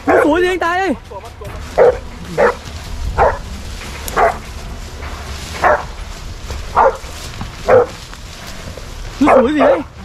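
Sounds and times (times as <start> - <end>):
dog barking: 0.0 - 0.4, 1.8 - 2.6, 3.2 - 3.4, 4.1 - 4.4, 5.6 - 5.9, 6.7 - 8.0, 9.2 - 9.9.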